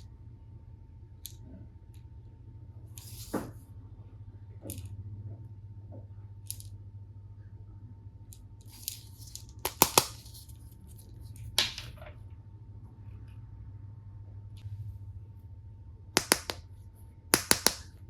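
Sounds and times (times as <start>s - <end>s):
rustles and taps of plastic pieces: 8.3s - 10.6s, 16.2s - 16.6s
sharp plastic clicks: 17.4s - 17.9s.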